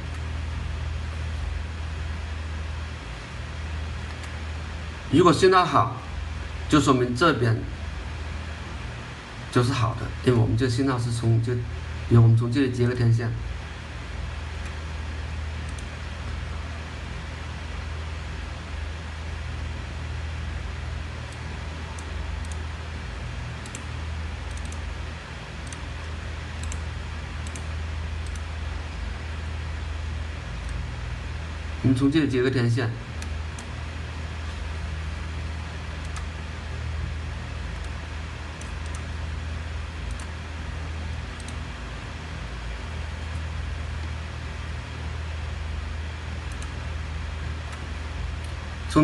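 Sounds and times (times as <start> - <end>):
low hum and hiss: 0.0 - 49.0
computer clicks: 4.0 - 4.4, 15.6 - 16.4, 21.2 - 22.7, 23.6 - 24.9, 25.6 - 28.5, 30.6 - 30.8, 36.0 - 36.4, 37.7 - 39.2, 40.0 - 40.4, 41.3 - 41.7, 46.4 - 46.8.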